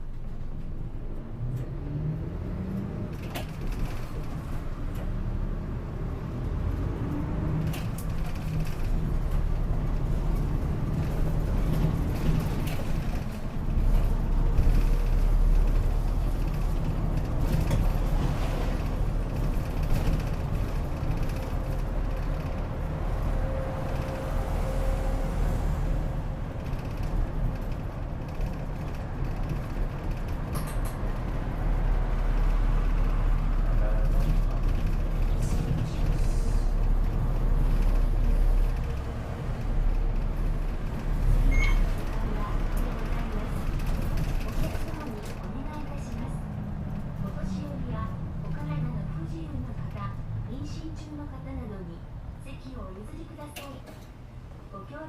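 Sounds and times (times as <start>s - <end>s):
bus engine rumble: 0.0s - 55.0s
road noise: 0.0s - 55.0s
short clicks in cabin: 53.4s - 54.1s.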